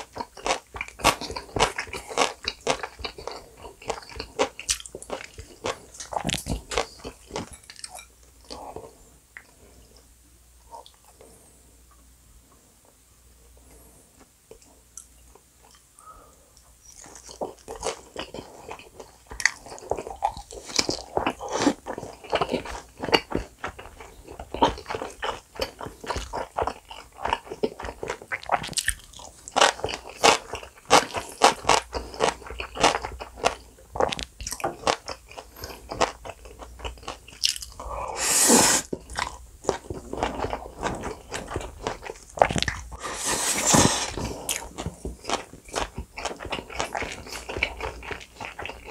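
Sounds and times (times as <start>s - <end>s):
crisp crunching and chewing: 0.0s - 8.0s, 16.8s - 37.8s, 38.9s - 48.9s
slurping: 37.9s - 39.0s, 42.9s - 44.7s.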